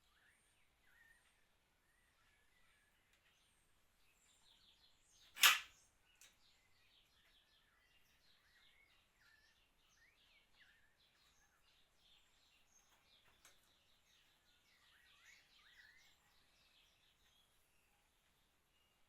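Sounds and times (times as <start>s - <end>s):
birds chirping and whistling: 6.8s - 17.5s.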